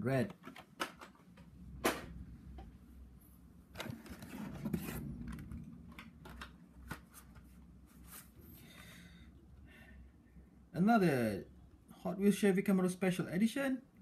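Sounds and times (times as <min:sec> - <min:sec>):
cardboard and plastic rustling: 0:03.7 - 0:08.4.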